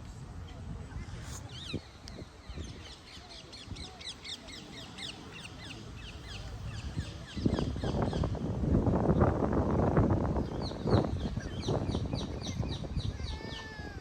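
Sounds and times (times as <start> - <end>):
birds chirping: 1.4 - 8.4, 10.4 - 13.9.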